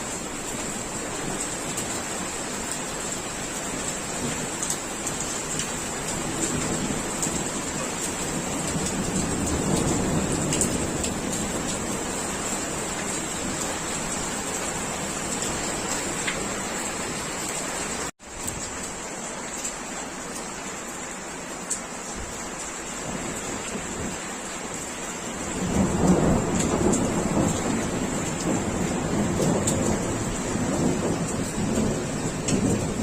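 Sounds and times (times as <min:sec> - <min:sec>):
steady rain: 0:00.0 - 0:33.0
distant thunder rumbling: 0:08.1 - 0:16.2, 0:25.4 - 0:33.0.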